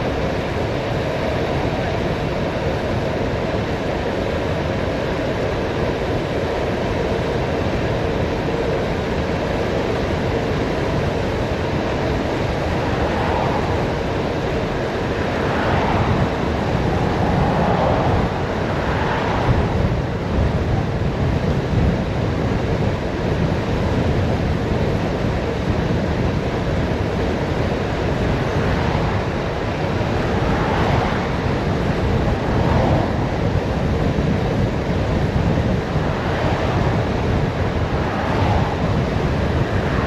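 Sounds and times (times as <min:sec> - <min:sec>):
tyre and road noise: 0:00.0 - 0:40.0
wind rushing over microphone: 0:00.0 - 0:40.0.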